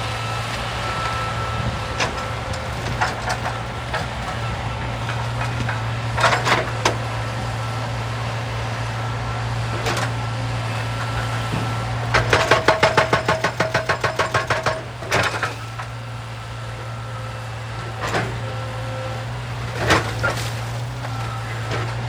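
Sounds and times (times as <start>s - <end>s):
excavator engine droning: 0.0s - 22.0s
knocks of rock and metal: 11.5s - 15.9s.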